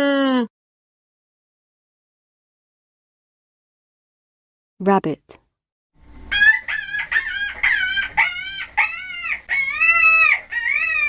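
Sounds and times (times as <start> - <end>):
animal high-pitched cries: 6.3 - 11.0.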